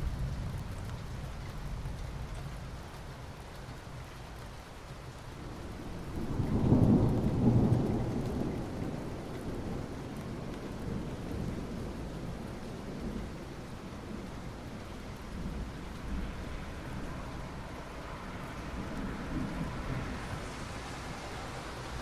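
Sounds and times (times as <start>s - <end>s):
soft rain on asphalt: 0.0s - 22.0s
distant thunder rumble: 5.5s - 14.3s, 15.2s - 22.0s.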